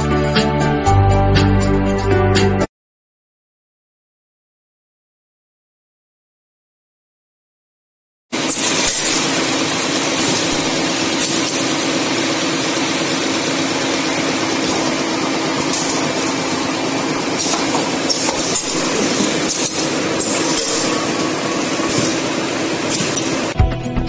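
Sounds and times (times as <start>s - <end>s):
machinery clattering and hiss: 8.4s - 23.6s
packing machinery humming: 8.4s - 23.7s.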